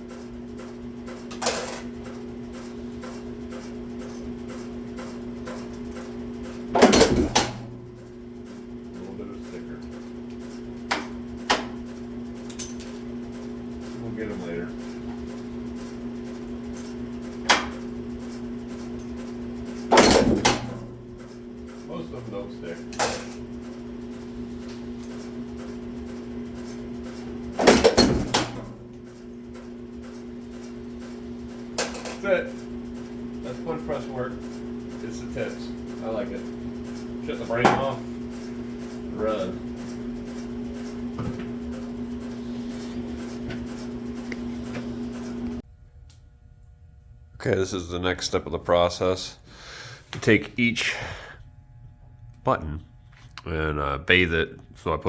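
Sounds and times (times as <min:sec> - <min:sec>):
punch press motor hum: 0:00.0 - 0:47.3.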